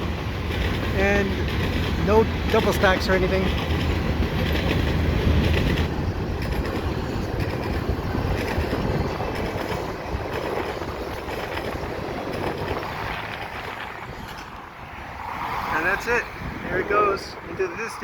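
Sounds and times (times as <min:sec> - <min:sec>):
freight train wheels rumbling: 0:00.0 - 0:17.8.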